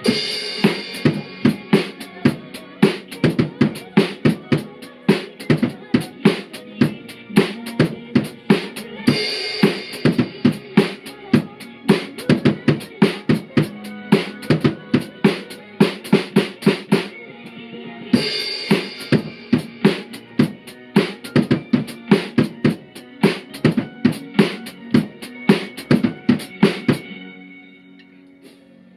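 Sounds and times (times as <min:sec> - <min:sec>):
drum kit beat: 0:00.0 - 0:17.2, 0:18.2 - 0:27.1
pop backing track: 0:00.0 - 0:27.4.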